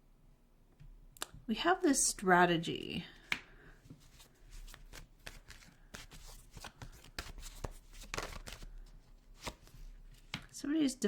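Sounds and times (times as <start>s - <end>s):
cards being shuffled: 3.2s - 10.6s.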